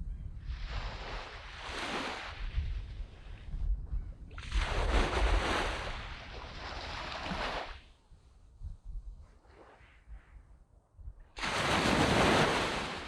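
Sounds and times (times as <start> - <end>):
waves breaking on a beach: 0.5 - 3.5, 4.3 - 7.9, 11.4 - 13.0.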